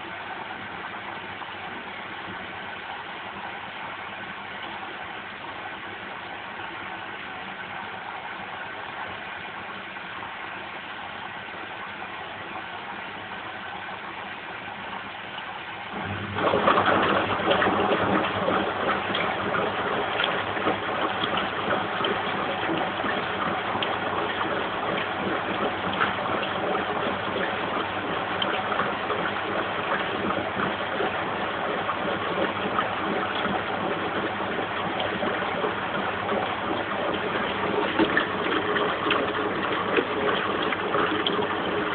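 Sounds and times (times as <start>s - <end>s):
washing machine hum: 0.0s - 41.9s
water gushing into drum: 0.0s - 41.9s.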